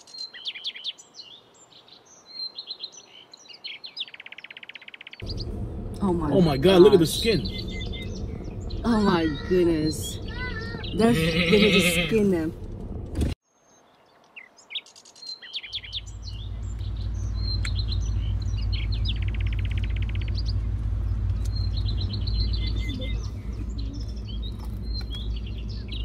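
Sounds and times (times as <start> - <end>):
songbirds chirping: 0.0 - 26.0
steady low rumble: 5.2 - 13.4, 16.0 - 26.0.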